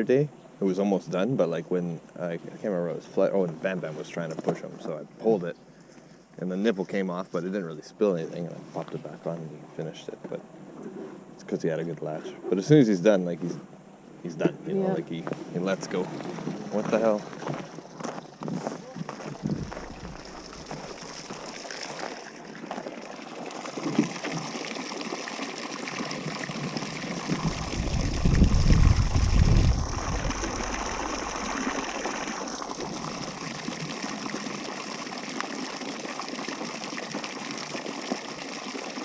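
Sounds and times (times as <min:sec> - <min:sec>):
water running and trickling: 0:19.1 - 0:39.0
low rumble: 0:19.3 - 0:21.5, 0:27.2 - 0:33.6.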